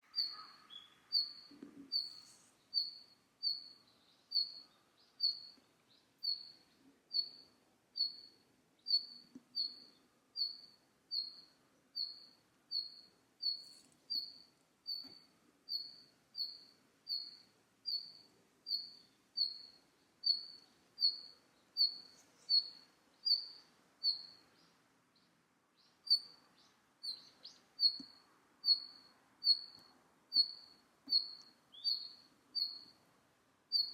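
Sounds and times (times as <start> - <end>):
bird giving short high calls: 0.1 - 1.3.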